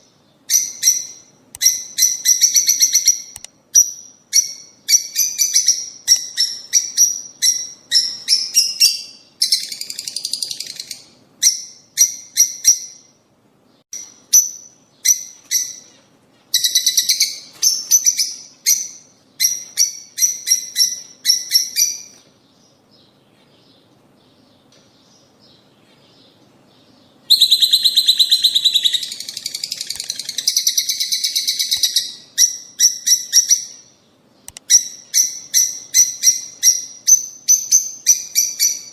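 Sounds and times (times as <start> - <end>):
birds chirping and chattering: 14.3 - 38.9.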